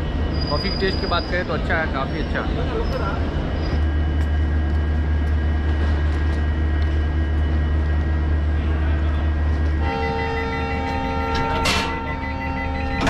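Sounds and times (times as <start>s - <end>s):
train engine drone: 0.0s - 13.0s.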